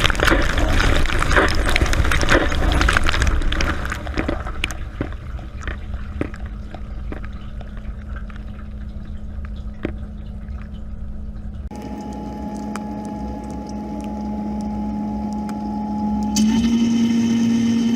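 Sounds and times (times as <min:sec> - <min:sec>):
drips and ticks: 0:00.0 - 0:16.6
dishwasher pump hum: 0:05.0 - 0:17.9.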